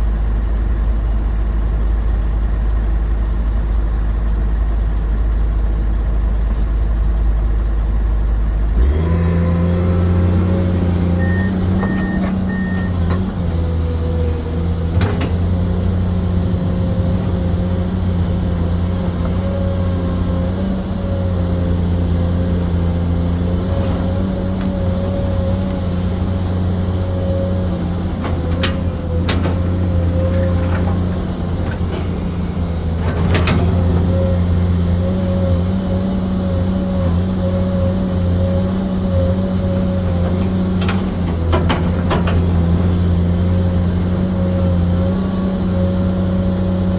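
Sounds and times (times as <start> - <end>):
excavator diesel engine: 0.0 - 46.9
short beeps: 11.2 - 13.0.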